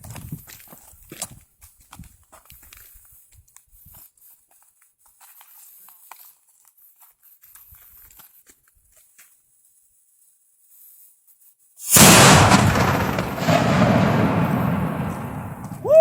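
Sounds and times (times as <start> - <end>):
sparkler bomb explosion: 11.8 - 16.0.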